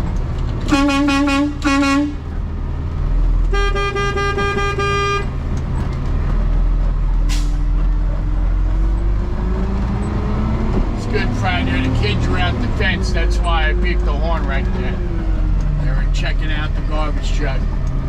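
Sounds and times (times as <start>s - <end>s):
truck engine drone: 0.0s - 18.0s
truck horn: 0.6s - 2.3s, 3.4s - 5.4s.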